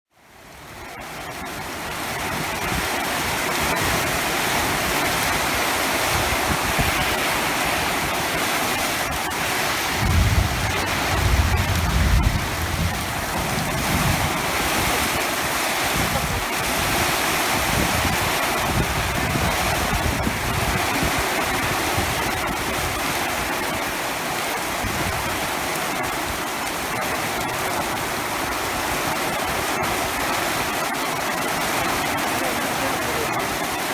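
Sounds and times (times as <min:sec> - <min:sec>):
heavy rain pouring: 0:00.2 - 0:33.9
low rumble: 0:09.9 - 0:15.2.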